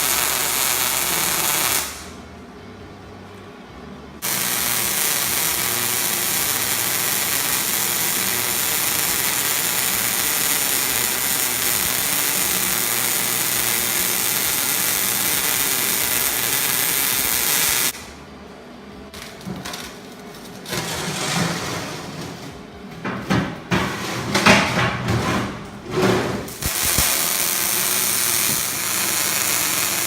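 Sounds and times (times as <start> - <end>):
welding arc hissing: 0.0 - 2.2, 4.2 - 18.1, 26.5 - 30.0.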